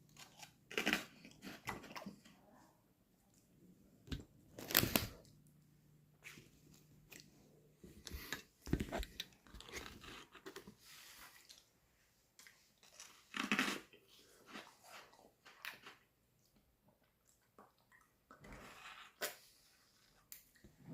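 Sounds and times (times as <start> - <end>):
crunchy popsicle bites: 4.6 - 5.2.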